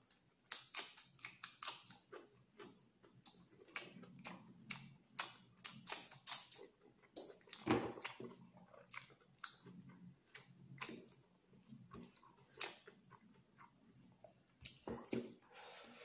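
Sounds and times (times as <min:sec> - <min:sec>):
wet mouth chewing sounds: 0:00.5 - 0:15.4.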